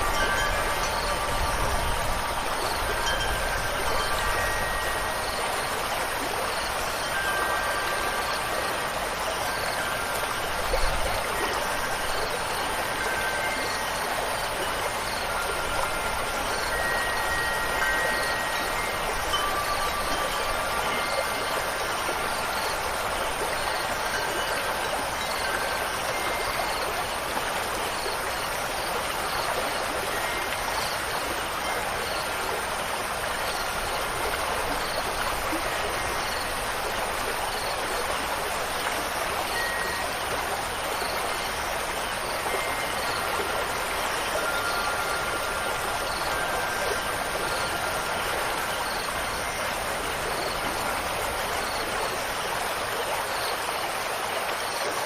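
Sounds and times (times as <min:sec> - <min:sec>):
faint wind chime tones: 0:00.0 - 0:55.0
running water: 0:00.0 - 0:55.0.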